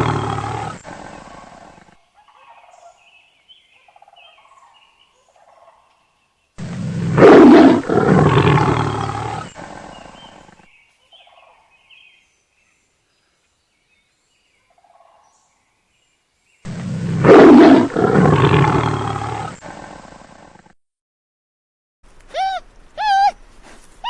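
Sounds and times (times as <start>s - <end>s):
big cat roaring: 0.0s - 1.9s, 6.6s - 10.6s, 16.7s - 20.7s
faint short animal calls: 22.3s - 23.4s.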